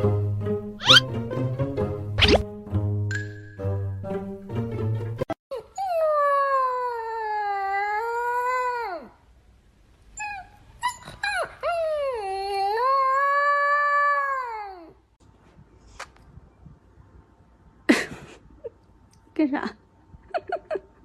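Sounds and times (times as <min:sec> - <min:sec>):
dog yelping: 0:00.8 - 0:01.0.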